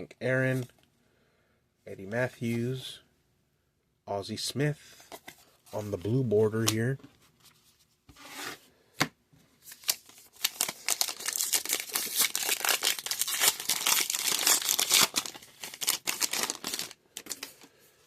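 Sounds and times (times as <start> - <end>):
wrapper tearing and crinkling: 9.7 - 17.6.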